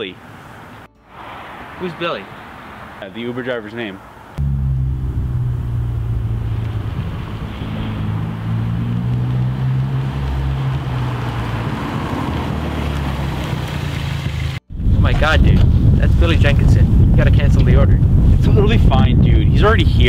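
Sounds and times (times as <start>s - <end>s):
car engine driving closer: 1.1s - 14.6s.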